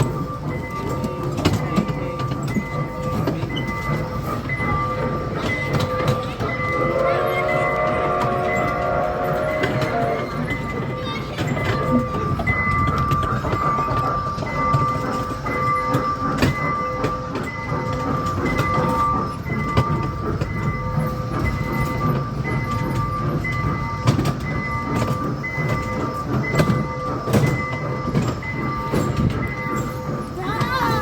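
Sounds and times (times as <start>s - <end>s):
mall train rumbling and rattling: 0.0s - 31.0s.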